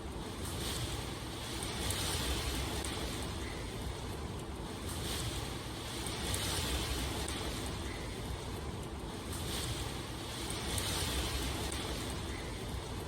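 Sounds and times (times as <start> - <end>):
wind: 0.0 - 13.0
rushing water: 0.4 - 13.0.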